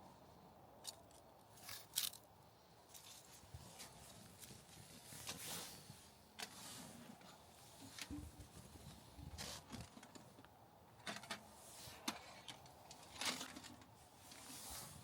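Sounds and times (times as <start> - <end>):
faint rustling and scraping: 0.9 - 15.0.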